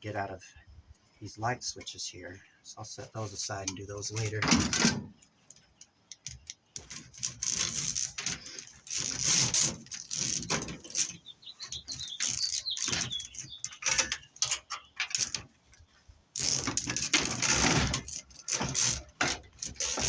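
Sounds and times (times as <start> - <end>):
faint bird chirping: 10.8 - 16.0.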